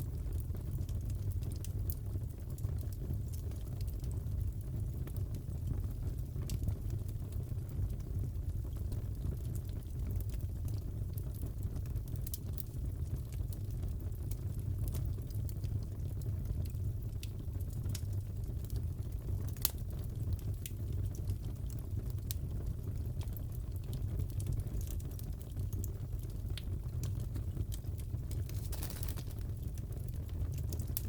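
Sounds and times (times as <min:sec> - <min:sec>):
low fire noise: 0:00.0 - 0:31.0
burning wood popping and snapping: 0:27.0 - 0:31.0.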